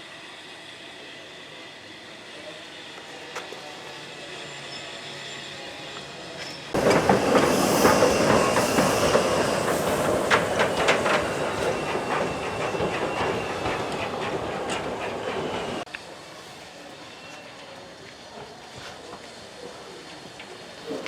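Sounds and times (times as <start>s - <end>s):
steam train running: 0.0s - 21.0s
wheels clicking over rail joints: 6.8s - 15.8s.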